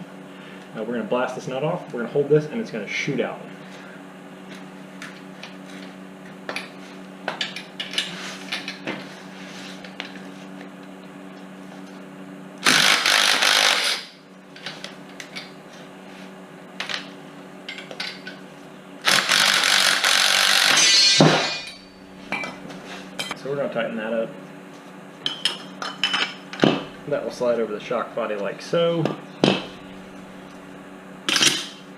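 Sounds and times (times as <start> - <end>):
metal tools clinking: 20.7 - 22.6.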